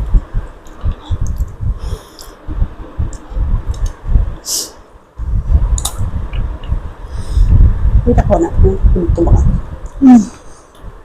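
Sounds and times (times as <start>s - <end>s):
wet mouth clicks and smacks: 5.7s - 6.8s.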